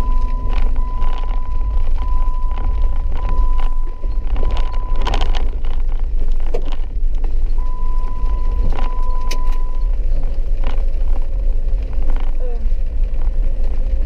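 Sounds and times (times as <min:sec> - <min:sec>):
knocks and rattles: 0:00.0 - 0:07.6
car driving rumble: 0:00.0 - 0:14.0.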